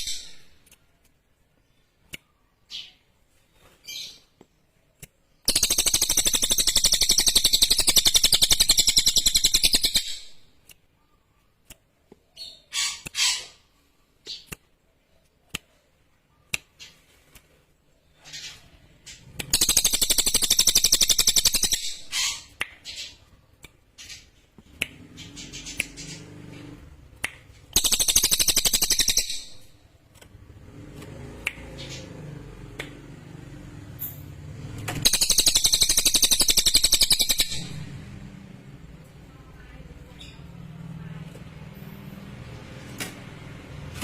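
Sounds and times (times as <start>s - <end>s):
songbird rapid trills: 27.7s - 29.6s, 35.0s - 37.7s.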